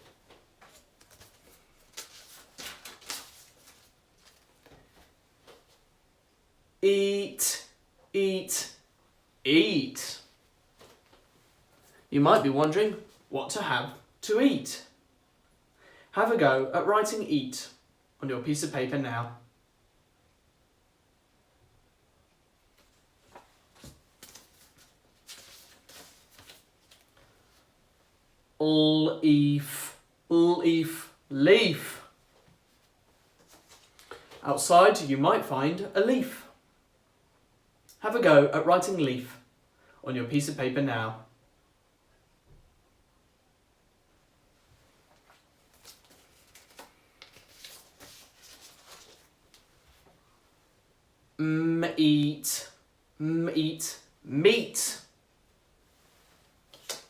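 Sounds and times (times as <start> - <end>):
soft rustles and taps of handling: 0.0 - 5.9, 10.8 - 11.3, 22.7 - 27.7, 32.3 - 34.4, 56.2 - 57.0
faint scratching and rustling: 22.8 - 27.7, 32.4 - 34.4, 44.8 - 50.2.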